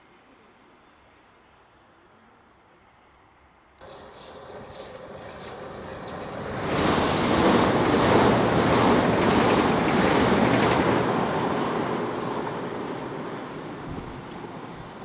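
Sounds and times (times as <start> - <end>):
train passing at speed: 3.8 - 15.0.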